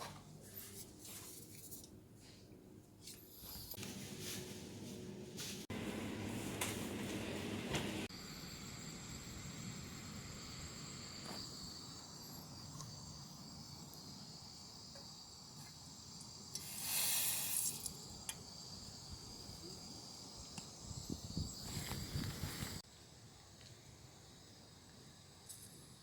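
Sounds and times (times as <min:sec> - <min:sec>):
insects chirring: 0:08.1 - 0:26.0
hissing noise burst: 0:16.6 - 0:22.8.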